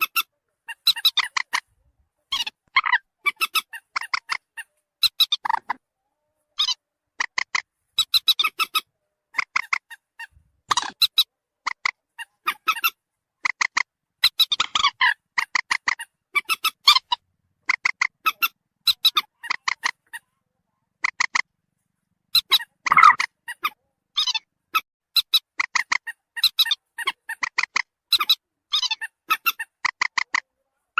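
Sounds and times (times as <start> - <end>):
moorhen calls: 0.0 - 1.7, 2.3 - 20.3, 21.0 - 21.5, 22.3 - 30.5.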